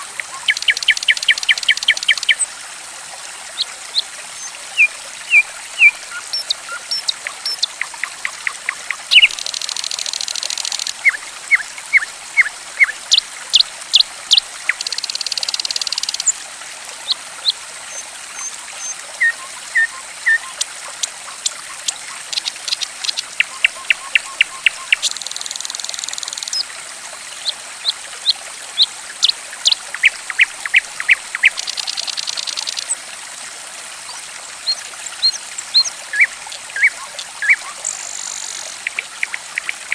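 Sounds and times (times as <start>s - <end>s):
water trickling: 0.0s - 39.9s
songbird chirping: 3.6s - 13.2s, 21.3s - 26.6s.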